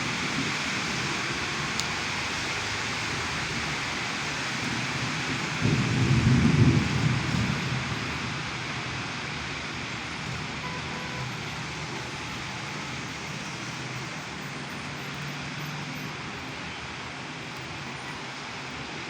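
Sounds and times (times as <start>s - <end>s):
thunder rumble: 0.0s - 10.2s
heavy rain hissing: 0.0s - 19.0s.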